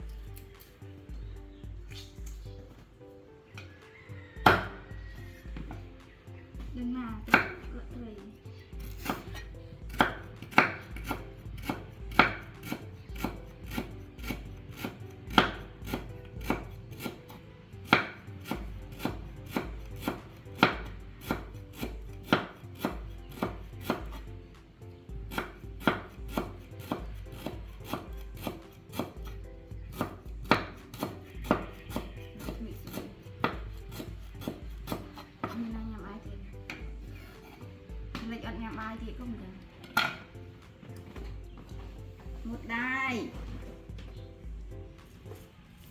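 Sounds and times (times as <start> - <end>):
sharp knocks: 4.4 - 4.8.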